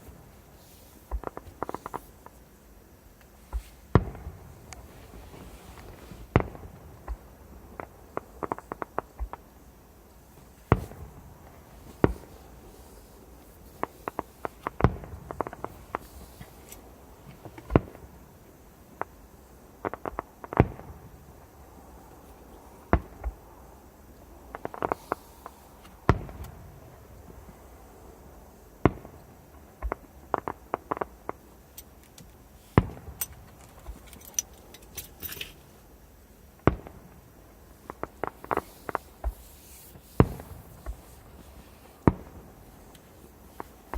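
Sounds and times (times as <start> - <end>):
fireworks crackling: 0.0 - 43.9
fireworks bangs: 3.5 - 9.5, 10.4 - 18.3, 22.8 - 23.4, 24.4 - 27.9, 28.8 - 31.5, 32.7 - 34.0, 36.6 - 43.9.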